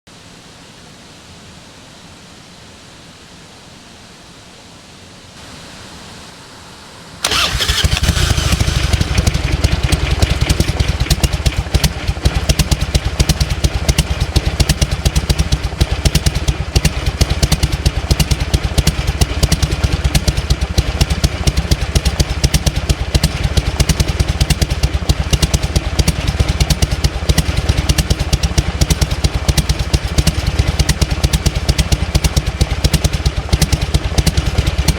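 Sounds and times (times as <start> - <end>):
motorcycle engine starting and idling: 7.2 - 34.9.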